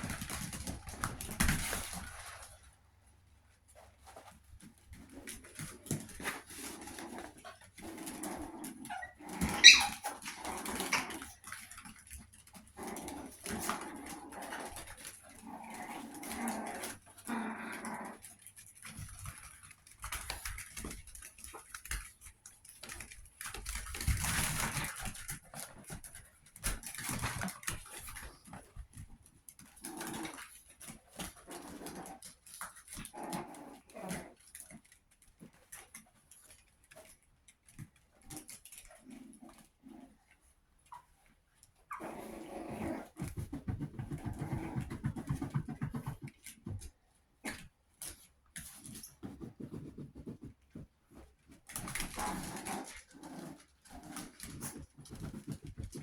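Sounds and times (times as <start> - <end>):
puppies making small sounds: 3.6 - 56.0
puppy yelping: 8.9 - 10.1.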